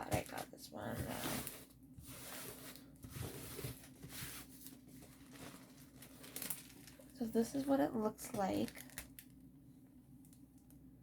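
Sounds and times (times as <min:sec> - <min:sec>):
packaging rustling and scuffing: 0:00.1 - 0:07.1.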